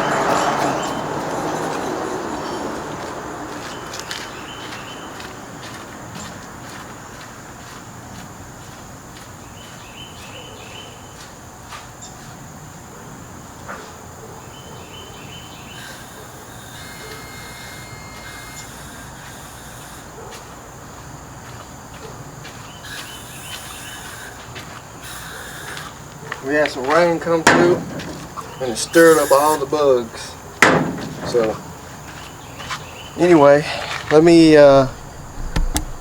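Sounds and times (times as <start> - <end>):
short chirping calls: 14.8 - 20.2, 22.6 - 26.1, 28.3 - 29.8
high-pitched insect drone: 15.1 - 21.6, 22.4 - 30.4.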